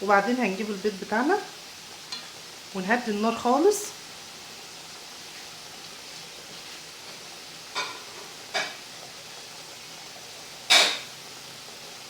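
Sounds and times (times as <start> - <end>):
meat sizzling in a pan: 0.0 - 12.0
cooking utensil striking pan: 7.7 - 8.8, 10.7 - 11.1.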